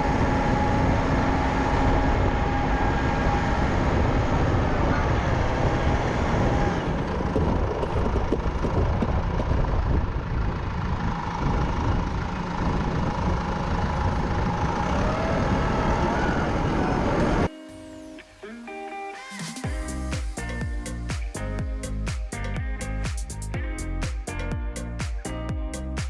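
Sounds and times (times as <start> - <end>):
snow tractor engine running: 0.0 - 17.5.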